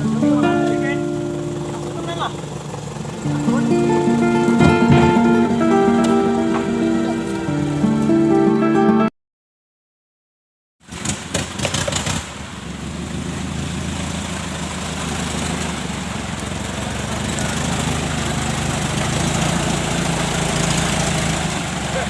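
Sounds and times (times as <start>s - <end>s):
diesel engine idling: 0.0s - 7.9s
sharp engine knocks and clatter: 4.5s - 5.4s, 10.9s - 12.4s, 14.3s - 21.9s.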